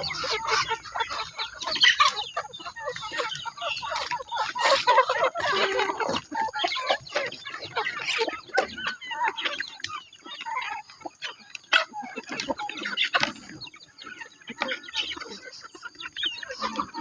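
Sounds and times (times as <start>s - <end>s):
chickens clucking and squawking: 0.0s - 17.0s.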